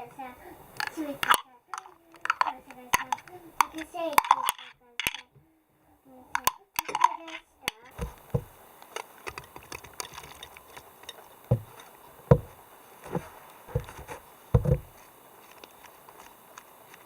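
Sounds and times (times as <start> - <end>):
light clicks and taps: 7.7 - 17.0
soft low thumps: 8.0 - 8.6, 11.5 - 15.0.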